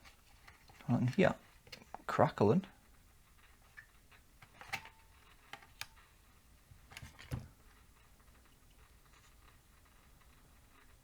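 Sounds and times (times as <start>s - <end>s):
sharp irregular clicks and crackles: 2.9s - 11.0s.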